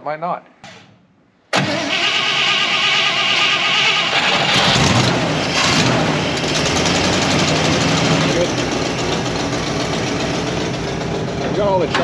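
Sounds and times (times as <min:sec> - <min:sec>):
pickup engine running loudly: 0:04.1 - 0:12.0.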